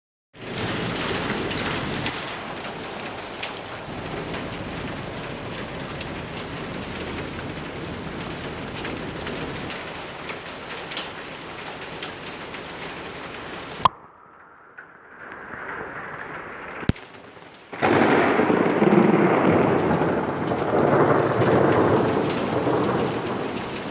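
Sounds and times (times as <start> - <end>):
rain falling: 0.4 - 23.9.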